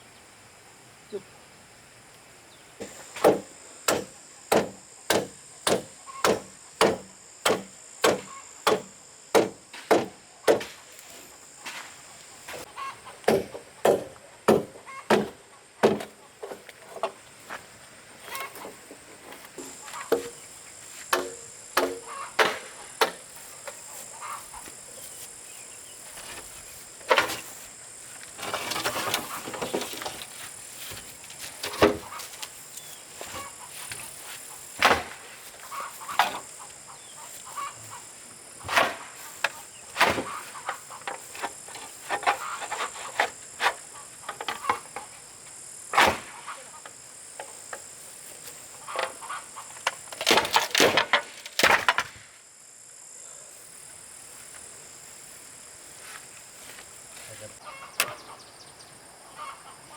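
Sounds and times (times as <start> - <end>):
hand tool striking hard: 3.2 - 10.8.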